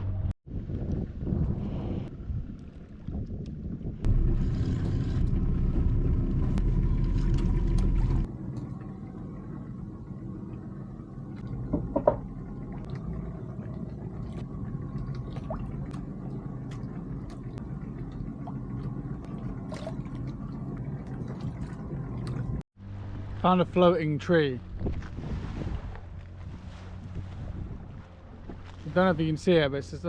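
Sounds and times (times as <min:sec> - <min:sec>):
boat motor rumbling: 0:02.1 - 0:30.0
knock: 0:11.7 - 0:12.2.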